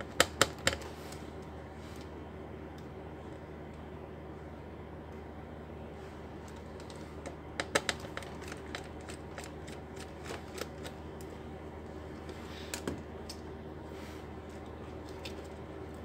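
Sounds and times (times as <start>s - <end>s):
laptop parts clicking and tapping: 0.0s - 0.9s, 7.6s - 11.0s.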